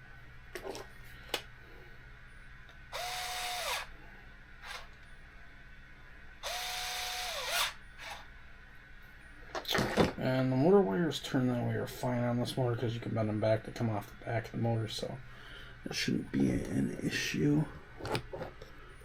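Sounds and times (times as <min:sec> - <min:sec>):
electric driver whining: 0:02.9 - 0:03.9, 0:04.6 - 0:04.9, 0:06.4 - 0:08.2.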